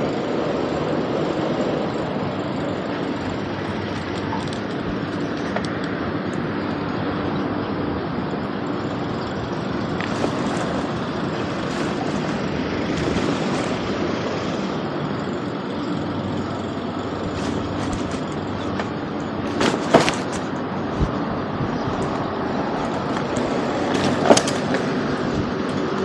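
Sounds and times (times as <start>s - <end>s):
vehicle mechanical rumble: 0.0s - 26.0s
loud clatter: 8.6s - 21.2s, 21.9s - 26.0s.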